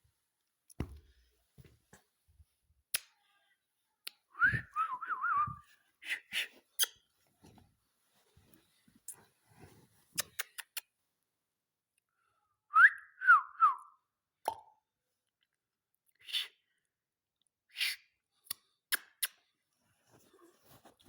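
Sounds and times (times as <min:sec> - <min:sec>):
short whistled notes: 0:04.4 - 0:06.2.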